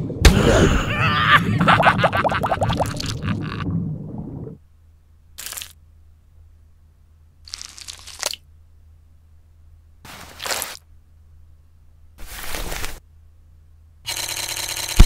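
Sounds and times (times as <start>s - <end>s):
crunchy crackling sound: 7.4s - 8.5s, 10.1s - 10.9s.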